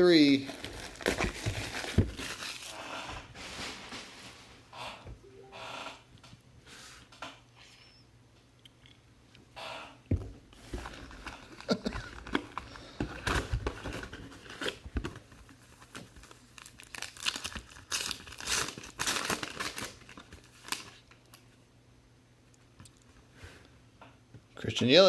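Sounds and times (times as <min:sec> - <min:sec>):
plastic wrapping tearing and crinkling: 0:00.2 - 0:04.4, 0:10.8 - 0:21.4.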